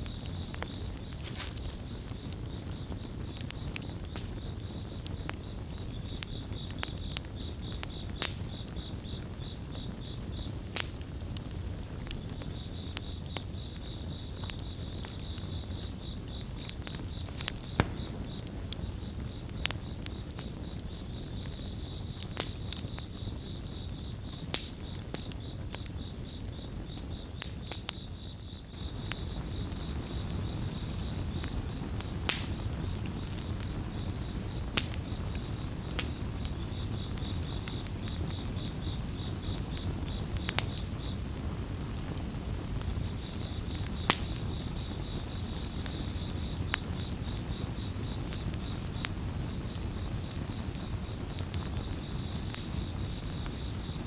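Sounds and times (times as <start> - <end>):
campfire crackling: 0.0 - 54.0
crickets chirping: 0.0 - 54.0.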